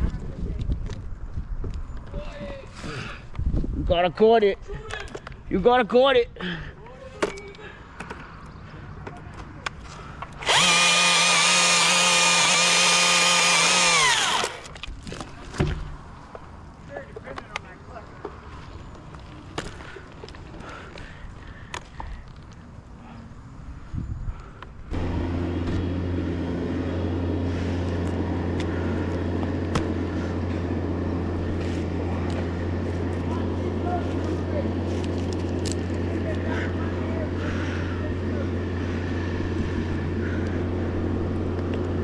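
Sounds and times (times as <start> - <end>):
engine humming steadily: 6.4 - 16.6, 24.4 - 42.0
chainsaw revving: 10.4 - 14.7, 24.9 - 36.6.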